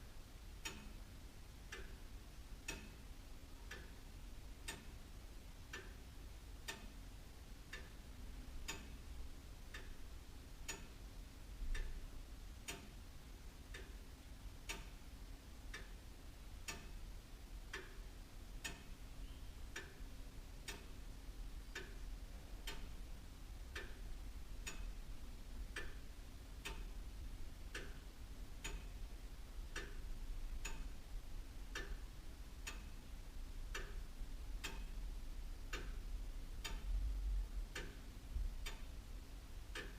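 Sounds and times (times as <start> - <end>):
faint low hum: 0.0 - 39.9
clock ticking: 0.6 - 39.9.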